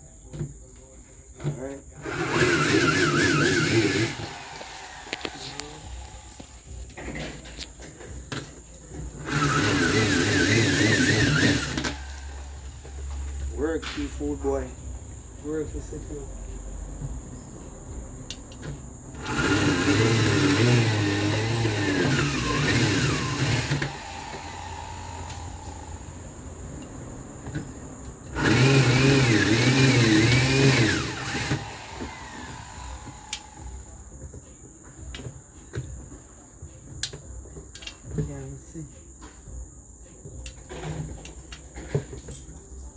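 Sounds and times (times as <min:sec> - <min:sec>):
power drill whining: 0:01.4 - 0:14.7, 0:18.4 - 0:34.3.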